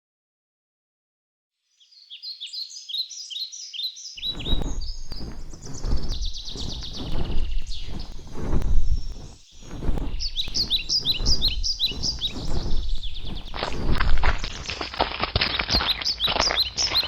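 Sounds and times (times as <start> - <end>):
small birds chirping: 1.7 - 17.0
loud uneven low rumble: 4.3 - 14.7.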